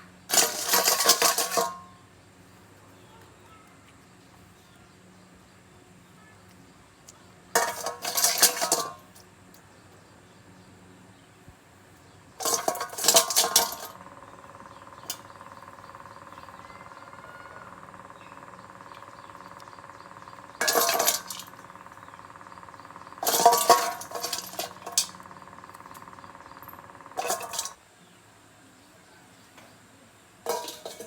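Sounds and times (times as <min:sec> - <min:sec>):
metal pieces clinking: 0:00.3 - 0:01.8, 0:07.6 - 0:09.1, 0:12.4 - 0:14.0, 0:20.4 - 0:21.8, 0:23.2 - 0:27.8, 0:30.5 - 0:31.0.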